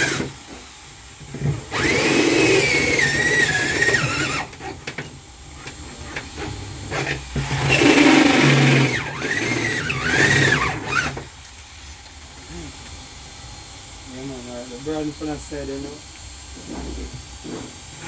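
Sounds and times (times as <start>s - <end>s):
electric drill boring: 0.0s - 11.3s.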